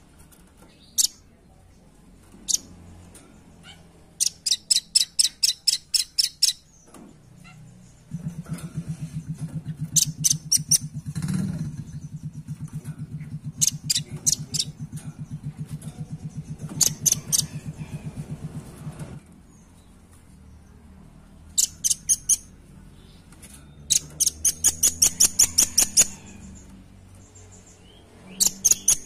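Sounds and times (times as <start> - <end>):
nuthatch calling: 2.4 - 2.7, 4.2 - 6.8, 9.8 - 12.4, 13.5 - 14.8, 16.6 - 17.8, 21.5 - 22.5, 23.9 - 26.5, 27.3 - 29.0
low fast pulsing: 8.1 - 19.0.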